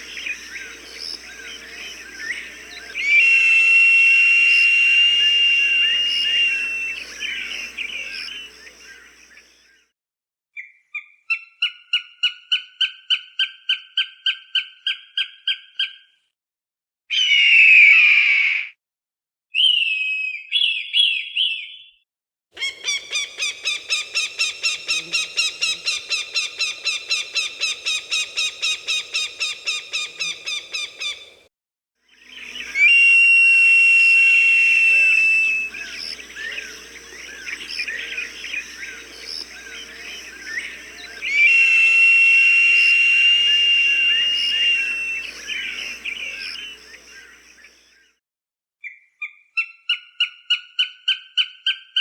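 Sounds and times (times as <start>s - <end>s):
falcon calls: 0.0s - 9.1s, 22.6s - 31.3s, 32.4s - 47.3s.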